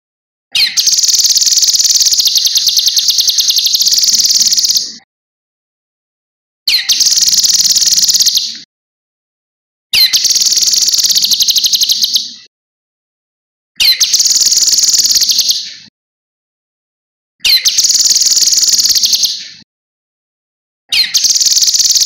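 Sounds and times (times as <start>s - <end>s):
bird trilling: 0.6s - 5.0s, 6.7s - 8.5s, 10.0s - 12.3s, 13.8s - 15.6s, 17.4s - 19.4s, 20.9s - 22.0s.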